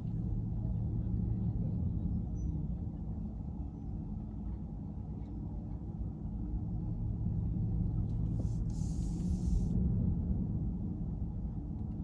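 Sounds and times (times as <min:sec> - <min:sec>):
car engine and tyre rumble: 0:07.0 - 0:12.0.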